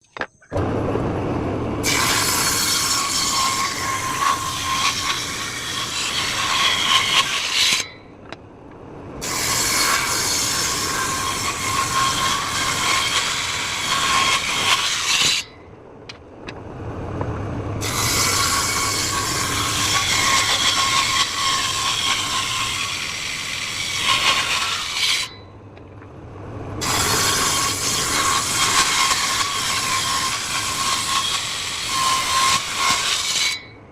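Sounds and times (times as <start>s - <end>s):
table saw cutting wood: 1.8s - 7.9s, 9.2s - 15.5s, 17.8s - 25.4s, 26.8s - 33.6s.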